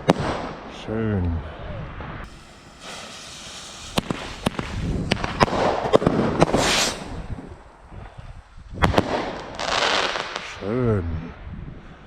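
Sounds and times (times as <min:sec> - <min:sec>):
fireworks bangs: 0:02.2 - 0:07.5, 0:08.8 - 0:10.6
fireworks crackle and hiss: 0:02.2 - 0:10.7.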